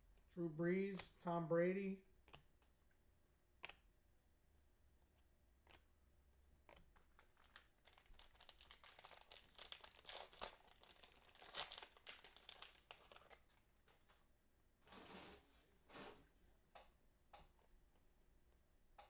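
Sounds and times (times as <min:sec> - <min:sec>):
wrapper crinkling and tearing: 0:06.7 - 0:14.2.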